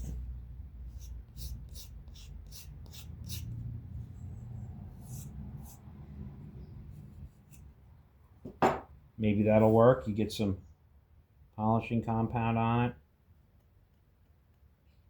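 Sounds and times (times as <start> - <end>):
single knock: 8.5 - 8.9.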